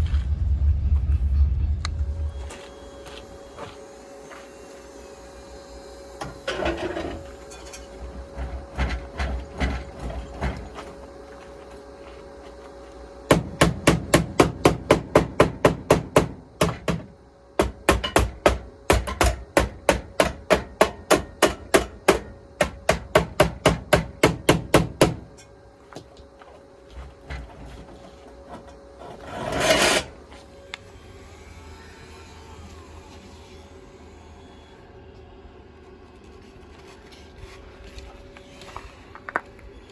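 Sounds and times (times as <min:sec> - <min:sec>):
hammer striking metal: 0:13.3 - 0:25.4.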